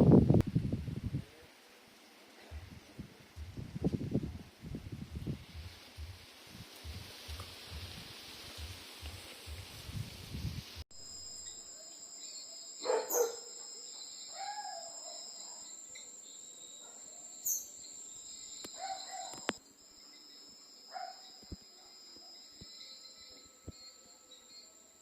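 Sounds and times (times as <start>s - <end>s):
rustling hiss: 0.5s - 25.0s
high insect drone: 5.0s - 25.0s
sharp clicks: 18.6s - 19.6s.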